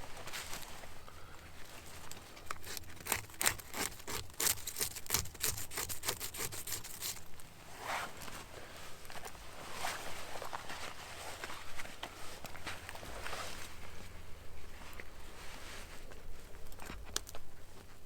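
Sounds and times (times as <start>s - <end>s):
hand saw cutting wood: 2.5s - 7.3s.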